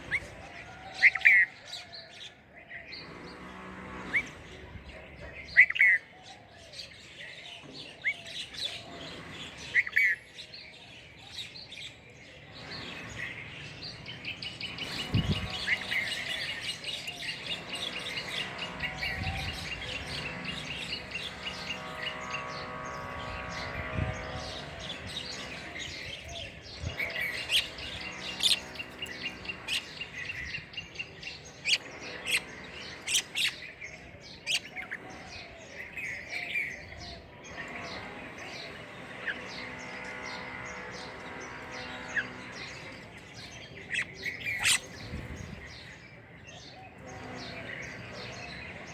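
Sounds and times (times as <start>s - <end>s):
small birds chirping: 2.8s - 48.9s.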